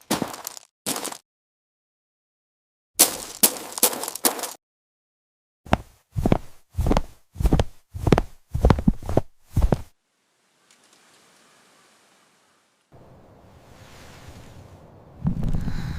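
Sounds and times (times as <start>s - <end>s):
faint hiss: 10.0s - 15.9s.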